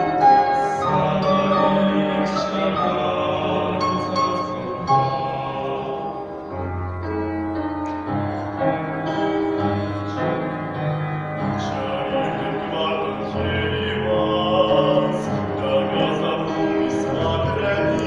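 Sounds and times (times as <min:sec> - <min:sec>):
choir singing held notes: 0:00.0 - 0:07.3, 0:11.4 - 0:18.0.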